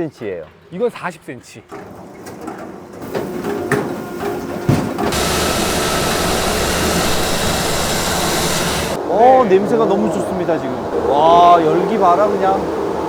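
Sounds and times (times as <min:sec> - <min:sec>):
loud steady machine rushing noise: 0:05.1 - 0:09.0
short machine hum: 0:05.1 - 0:09.0.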